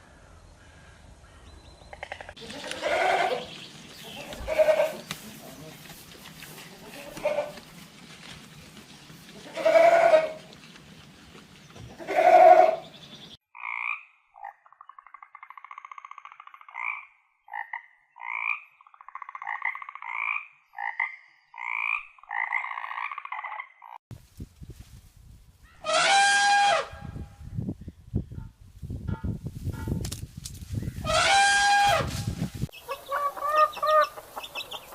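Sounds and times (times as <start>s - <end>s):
animal bleat: 2.4s - 3.5s, 4.1s - 5.0s, 6.6s - 7.6s, 9.4s - 10.4s, 11.9s - 12.9s, 31.1s - 32.0s
frog croaking: 13.5s - 24.0s.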